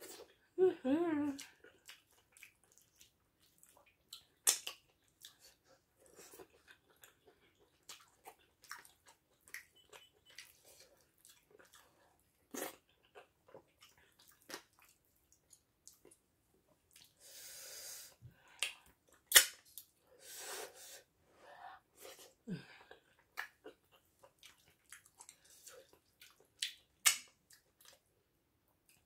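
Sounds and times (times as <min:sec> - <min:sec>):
wet chewing and mouth clicks: 0:01.3 - 0:17.2, 0:22.9 - 0:28.2
lip smacks: 0:18.6 - 0:19.9, 0:26.2 - 0:28.0.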